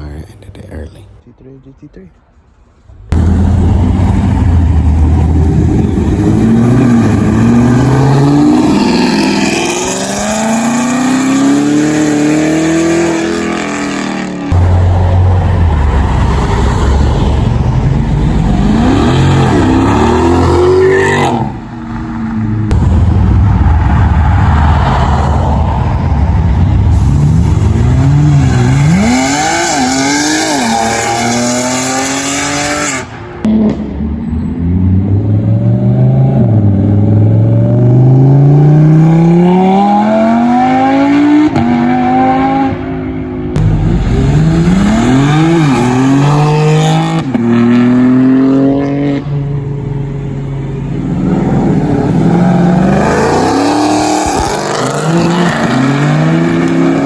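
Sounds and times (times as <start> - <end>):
car engine revving: 3.1 - 21.8, 22.7 - 34.0, 43.5 - 49.4.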